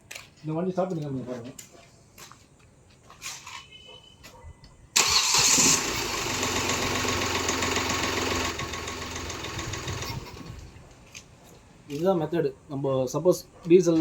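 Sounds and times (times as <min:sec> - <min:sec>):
diesel car engine starting and idling: 0:05.0 - 0:10.8.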